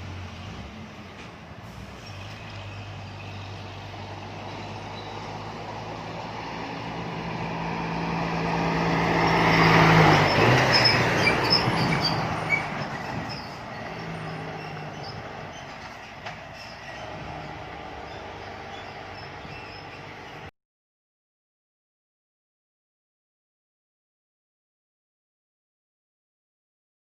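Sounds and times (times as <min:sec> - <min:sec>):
diesel truck driving past: 0:00.0 - 0:20.5.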